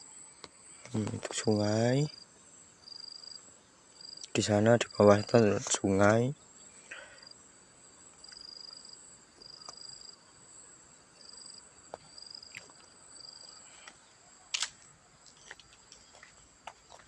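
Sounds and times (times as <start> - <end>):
insects buzzing: 0.0 - 17.0
clicks and snaps: 14.5 - 16.1.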